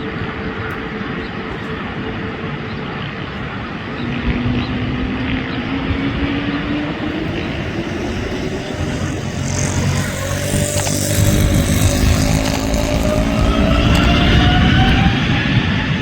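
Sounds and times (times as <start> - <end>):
jet engines roaring on takeoff: 0.0 - 16.0.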